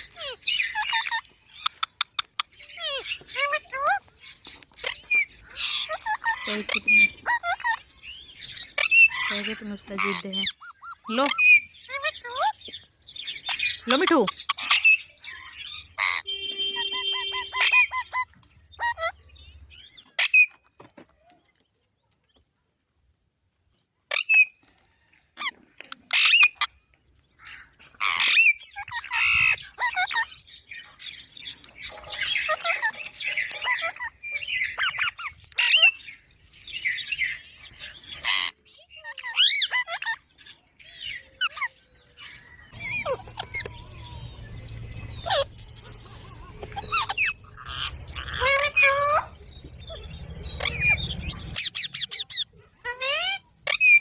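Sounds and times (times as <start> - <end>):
parrot squawking and chirping: 0.0 - 20.8, 24.1 - 24.6, 25.4 - 26.8, 27.4 - 54.0.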